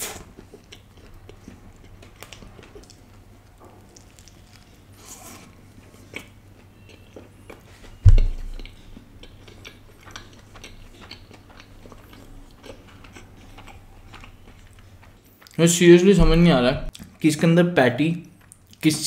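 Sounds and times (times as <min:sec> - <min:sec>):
person chewing: 0:00.0 - 0:15.6, 0:18.3 - 0:18.8
loud low thump: 0:08.0 - 0:08.6, 0:16.2 - 0:16.9.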